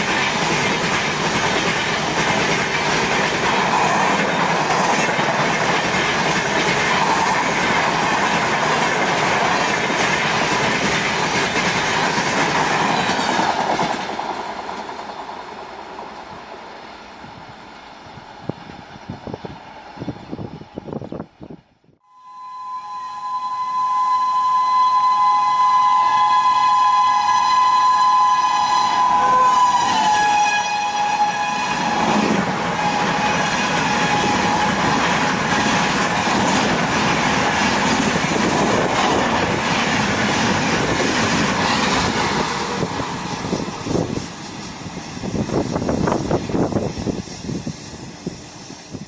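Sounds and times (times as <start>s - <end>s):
train coaches rushing and clattering: 0.0s - 21.6s, 27.3s - 49.0s
two-tone train horn: 22.0s - 35.2s.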